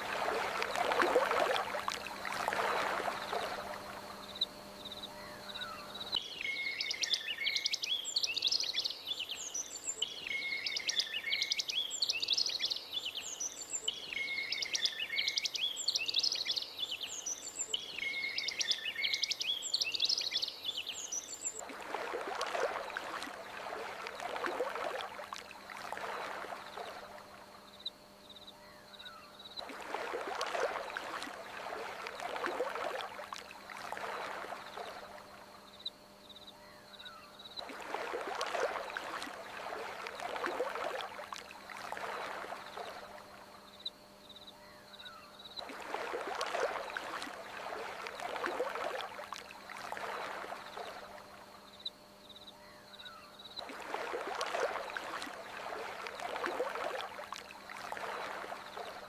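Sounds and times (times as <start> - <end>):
water washing in surges: 0.0 - 3.8, 21.6 - 27.0, 37.7 - 43.2, 45.7 - 51.0, 53.7 - 59.0
steady low hum: 0.0 - 7.0.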